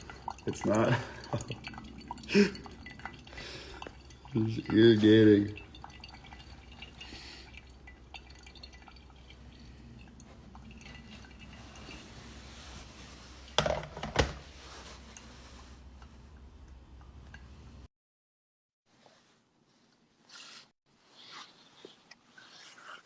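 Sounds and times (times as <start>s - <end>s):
coffee dripping through brewer: 0.0s - 17.9s.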